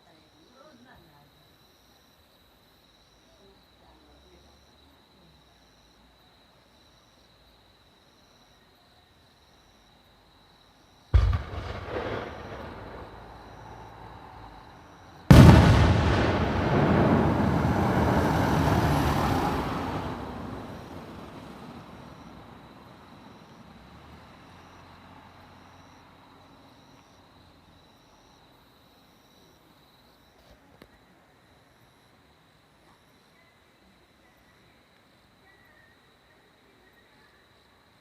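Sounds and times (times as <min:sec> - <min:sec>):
crickets chirping: 0:00.0 - 0:38.0
fireworks booming: 0:11.1 - 0:22.3
fireworks crackling and rumbling: 0:11.2 - 0:22.3.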